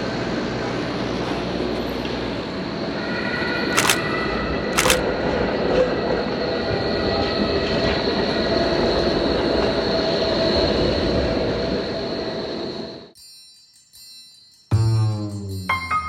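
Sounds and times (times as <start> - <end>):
subway train wheels rumbling: 5.9 - 13.0.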